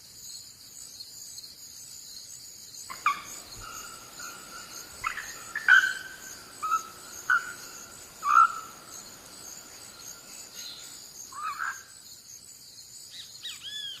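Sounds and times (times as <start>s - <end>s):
insects chirring: 0.0s - 14.0s
sharp bird calls: 2.9s - 11.9s.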